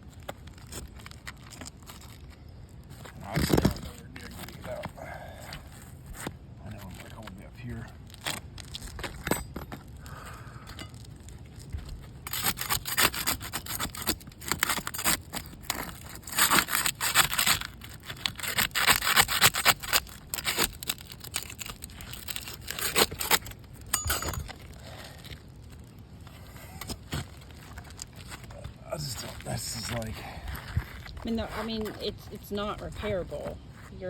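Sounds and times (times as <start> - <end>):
shingles crackling: 0.0 - 33.9
crowbar prying roof shingles: 12.3 - 24.6.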